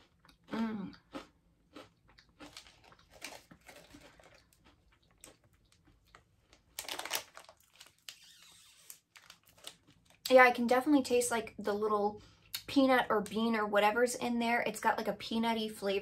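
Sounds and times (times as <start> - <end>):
crunchy beans being chewed: 0.0 - 8.0.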